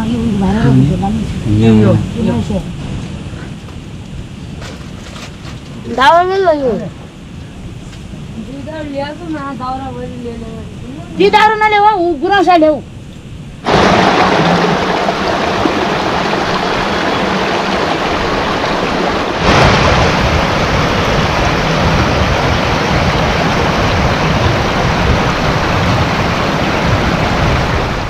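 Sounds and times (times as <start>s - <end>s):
flowing water rushing: 13.6s - 28.0s.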